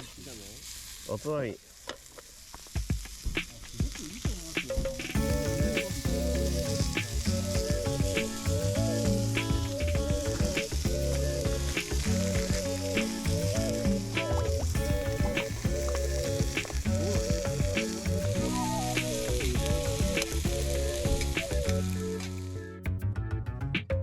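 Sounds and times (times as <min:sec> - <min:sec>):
food sizzling in a pan: 0:00.0 - 0:22.2
background music melody: 0:05.2 - 0:24.0.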